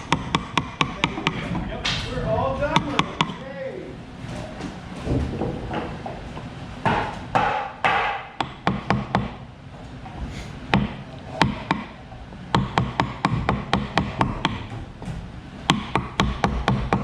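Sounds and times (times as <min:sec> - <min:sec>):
wood knocking on wood: 0:00.0 - 0:03.4, 0:04.6 - 0:09.4, 0:10.0 - 0:17.0.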